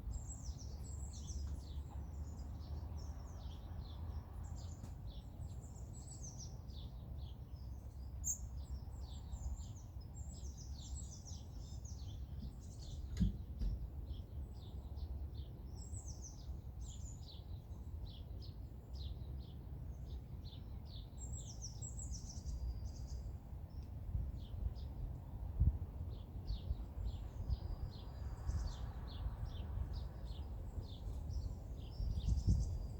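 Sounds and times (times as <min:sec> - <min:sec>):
songbirds singing and chirping: 0:00.0 - 0:32.9
brief thump: 0:13.1 - 0:13.8.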